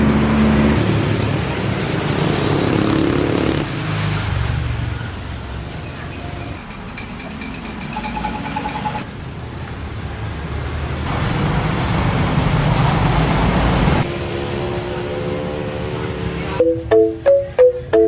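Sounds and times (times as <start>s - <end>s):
motor vehicle passing: 0.0s - 9.1s, 10.0s - 16.6s
steady held tones: 16.6s - 18.0s.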